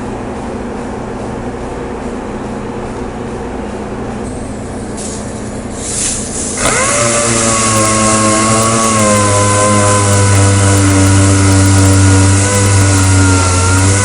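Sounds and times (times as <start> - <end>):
machine hum: 0.0 - 14.0
sander whining: 6.6 - 14.0.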